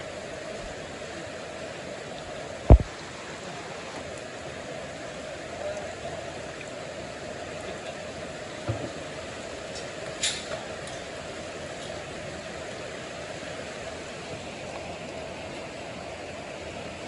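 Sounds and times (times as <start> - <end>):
floodwater running: 0.0 - 17.0
sharp low thump: 2.7 - 2.9.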